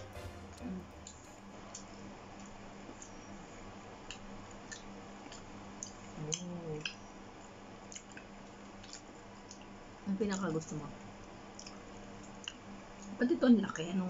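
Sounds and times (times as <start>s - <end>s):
wet chewing clicks: 4.1s - 7.0s, 7.9s - 10.6s, 11.5s - 13.2s.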